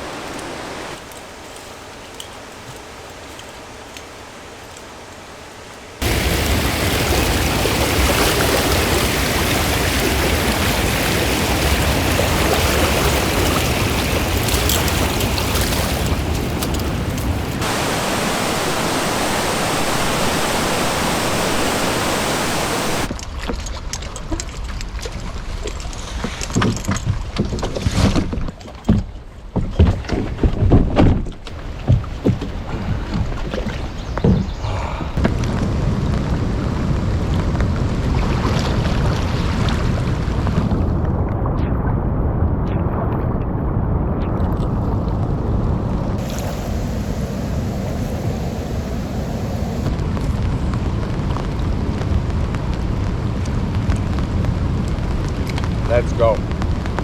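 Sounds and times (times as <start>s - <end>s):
river water rushing: 0.0s - 23.1s, 46.2s - 50.0s
water lapping: 6.0s - 28.9s, 31.5s - 35.2s
paddle splashes: 6.0s - 35.5s.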